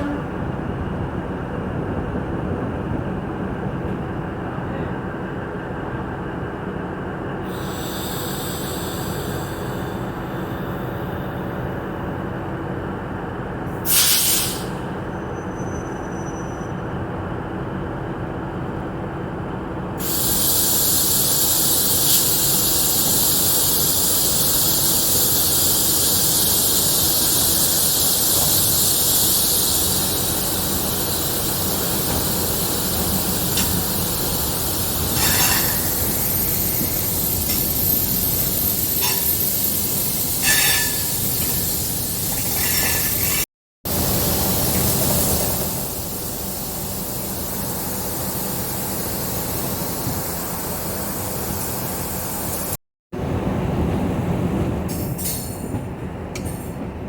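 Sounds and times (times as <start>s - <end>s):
train ride rumble: 0.0s - 57.0s
loud high-pitched hiss: 7.5s - 11.1s, 13.8s - 14.8s, 20.0s - 52.8s.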